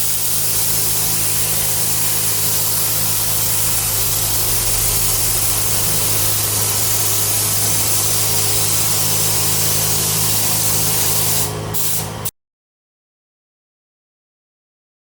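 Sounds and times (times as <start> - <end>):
compressed air spray hissing: 0.0 - 12.3
low steady hum: 1.2 - 9.1.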